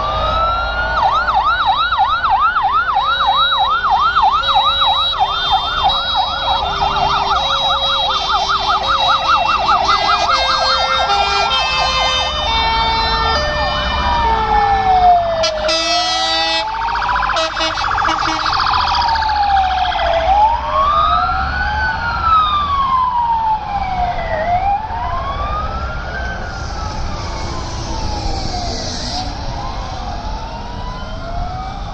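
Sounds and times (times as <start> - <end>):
fire truck sirens: 0.0 - 31.9
multi-tone horn blast: 15.4 - 16.7, 17.4 - 18.6.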